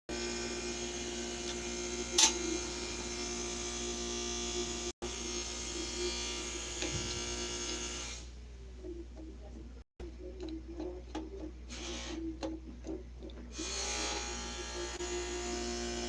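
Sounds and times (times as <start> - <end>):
mechanical buzz: 10.2 - 16.0.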